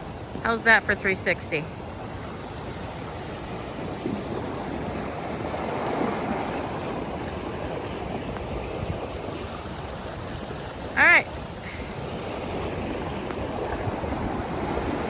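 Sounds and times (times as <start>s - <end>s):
floodwater rushing through creek: 0.0s - 15.0s.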